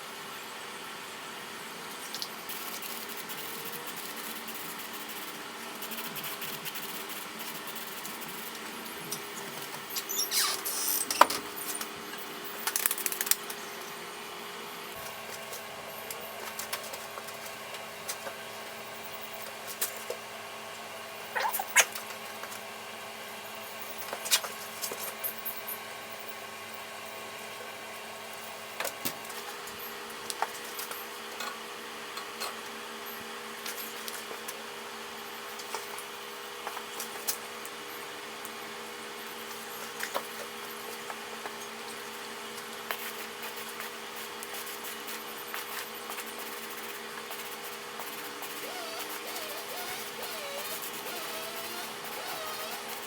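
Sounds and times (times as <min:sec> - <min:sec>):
machine hum: 0:48.0 - 0:53.0.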